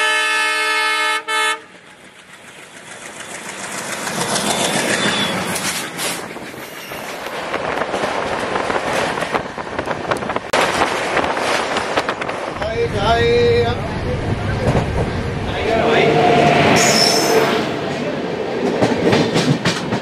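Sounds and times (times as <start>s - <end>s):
freight train rushing past: 0.0s - 20.0s
steel wheels clattering on rail joints: 1.7s - 20.0s.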